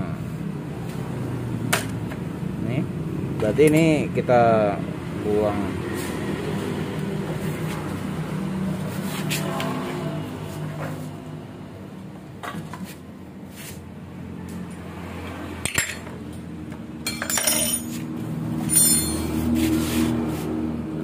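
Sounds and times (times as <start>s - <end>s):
metal parts clinking and rattling: 17.0s - 18.0s, 18.6s - 19.4s.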